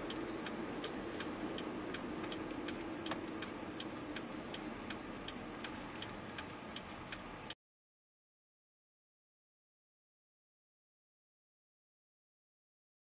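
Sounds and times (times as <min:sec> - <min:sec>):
faint constant hum: 0:00.0 - 0:07.5
steady ticking: 0:00.0 - 0:07.6.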